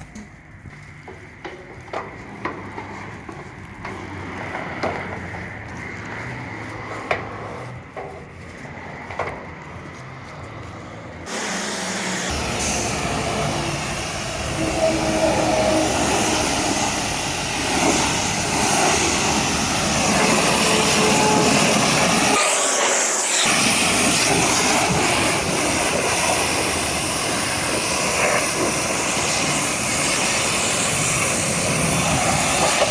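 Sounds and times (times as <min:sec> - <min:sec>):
pressure washer jet hissing: 0:11.3 - 0:32.9.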